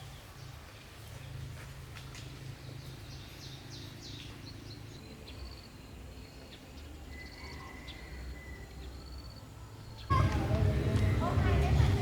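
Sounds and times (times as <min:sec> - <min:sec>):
small birds chirping: 0:02.1 - 0:12.0
low hum: 0:10.1 - 0:12.0.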